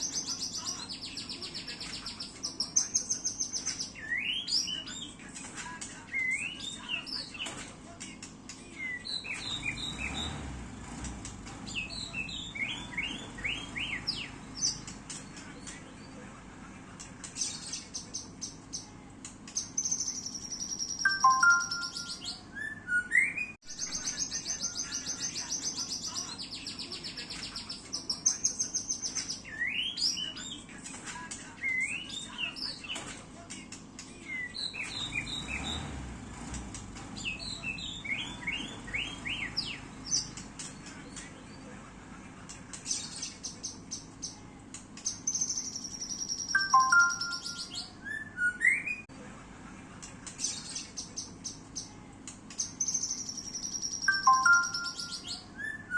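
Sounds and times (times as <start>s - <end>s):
songbird singing trills and whistles: 0.0s - 5.4s, 6.0s - 7.6s, 8.5s - 10.4s, 11.5s - 16.2s, 19.5s - 30.9s, 31.6s - 33.1s, 33.7s - 35.9s, 37.1s - 41.6s, 42.8s - 49.1s, 52.5s - 55.9s.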